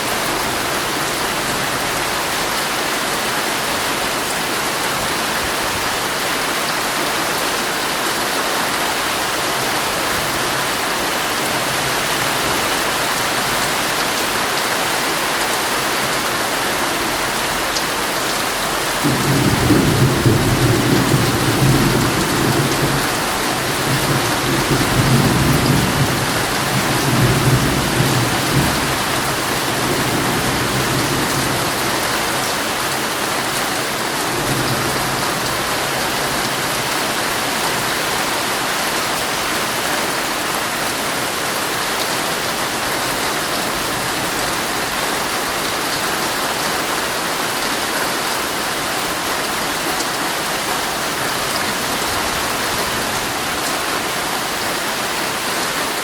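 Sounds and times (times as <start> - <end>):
heavy rain on a tent: 0.0 - 56.0
thunder rumbling: 18.9 - 32.0.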